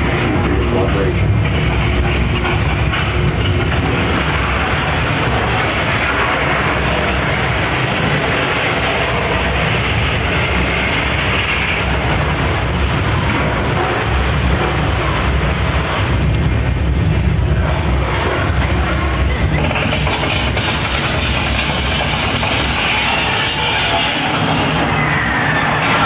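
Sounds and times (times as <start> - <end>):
train car rumbling and rattling: 0.0 - 26.0.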